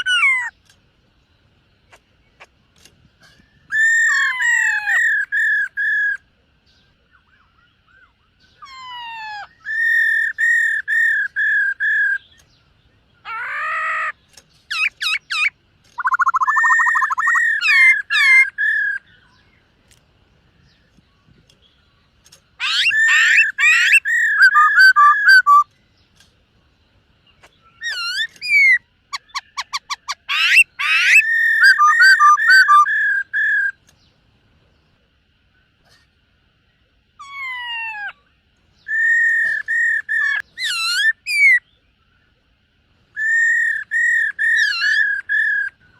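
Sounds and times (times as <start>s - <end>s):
bird singing whistled notes: 3.2s - 19.6s, 20.5s - 26.2s, 27.3s - 34.1s, 38.8s - 42.4s, 43.1s - 45.9s.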